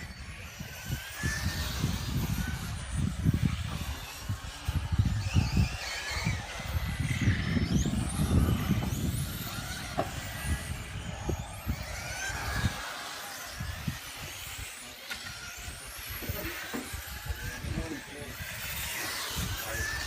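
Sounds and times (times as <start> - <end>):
toy car electric motor whining: 0.0 - 20.0
wind buffeting microphone: 0.0 - 20.0.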